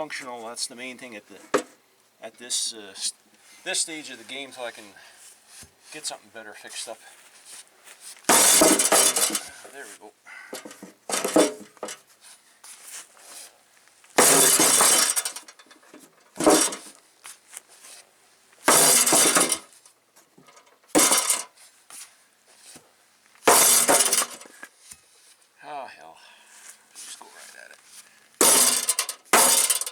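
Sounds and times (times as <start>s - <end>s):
sledgehammer striking metal fender: 8.3s - 9.5s, 14.2s - 15.5s, 16.4s - 16.9s, 18.7s - 19.7s, 20.9s - 21.5s, 23.5s - 24.5s, 28.4s - 29.9s.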